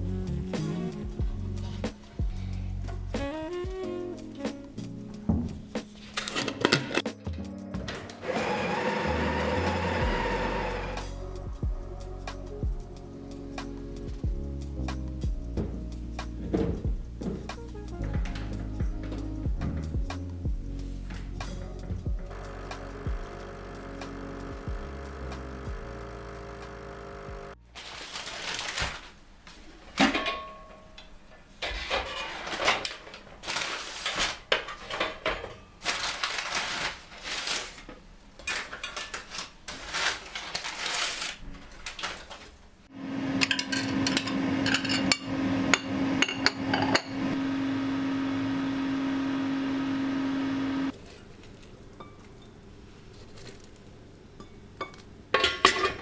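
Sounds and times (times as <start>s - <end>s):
kitchen appliance humming: 8.0s - 11.1s, 22.3s - 27.6s, 42.9s - 51.0s
dishes and glassware clattering: 30.0s - 30.9s, 43.3s - 47.4s, 54.4s - 56.0s.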